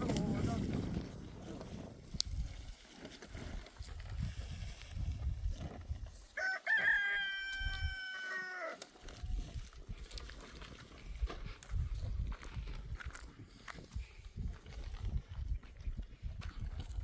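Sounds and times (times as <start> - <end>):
rooster crowing: 6.4 - 8.8.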